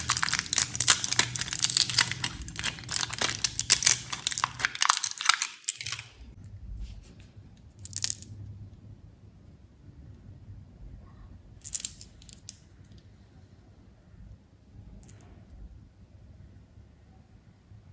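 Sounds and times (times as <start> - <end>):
candy wrappers crinkling: 0.0 - 6.3.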